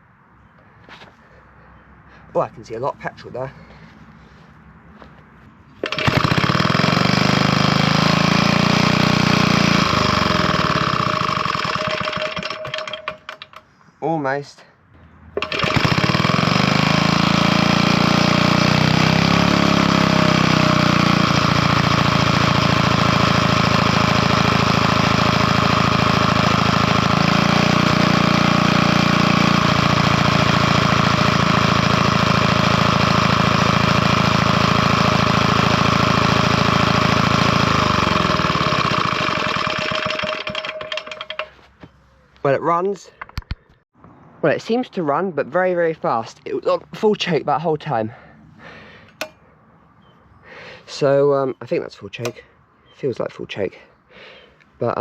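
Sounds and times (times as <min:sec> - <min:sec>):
stationary engine running fast: 0:05.8 - 0:13.3, 0:15.4 - 0:41.4.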